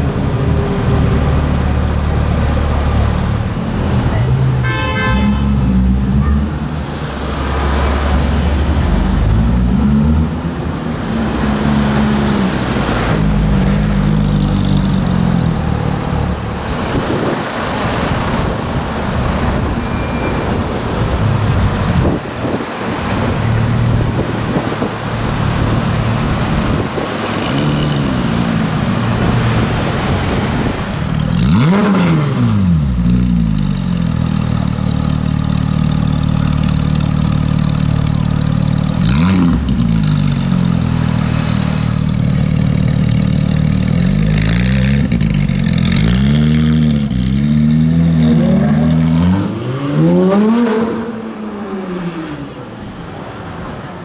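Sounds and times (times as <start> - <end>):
road traffic noise: 0.0 - 54.0
sports car engine revving: 21.0 - 52.6.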